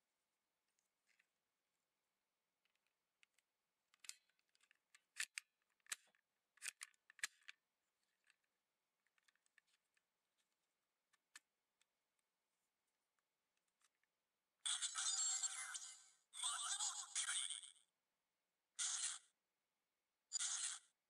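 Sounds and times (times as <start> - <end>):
plastic toy clicks and snaps: 5.1 - 7.6.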